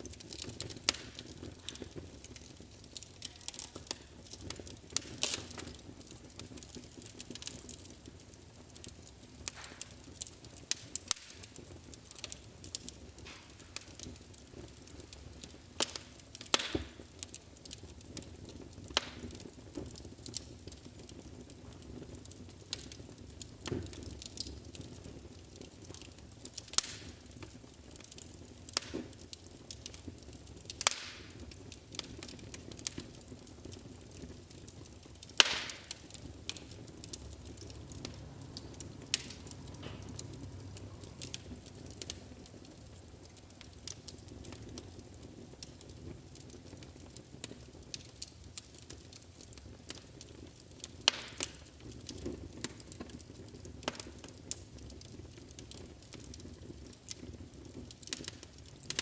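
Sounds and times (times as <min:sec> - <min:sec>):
low rumble of flame: 0:00.0 - 0:59.0
wood fire crackling and popping: 0:00.0 - 0:59.0.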